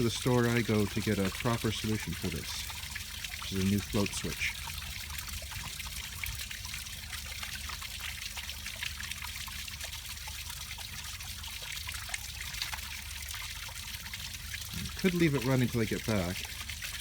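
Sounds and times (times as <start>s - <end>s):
low steady hum: 0.0s - 17.0s
water pouring from pump discharge: 0.0s - 17.0s.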